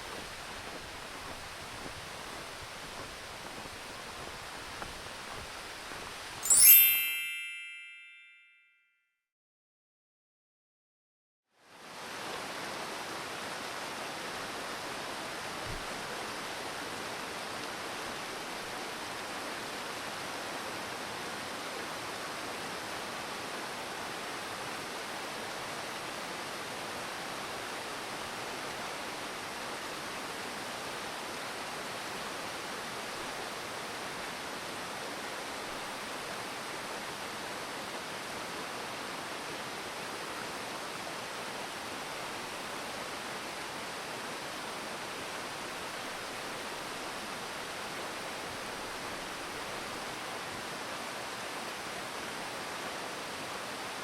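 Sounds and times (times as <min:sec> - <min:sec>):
falling water rushing: 0:00.0 - 0:06.7.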